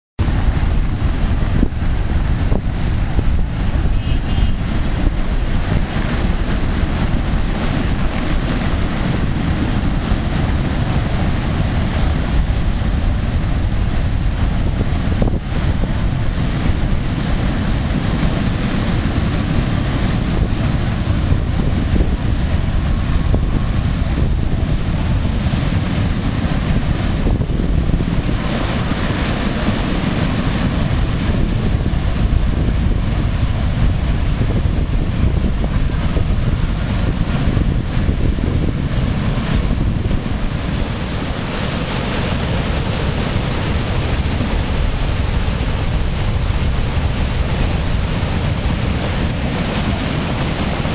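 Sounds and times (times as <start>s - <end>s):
water rushing along a canal: 0.2s - 50.9s
wind buffeting microphone: 0.2s - 50.9s.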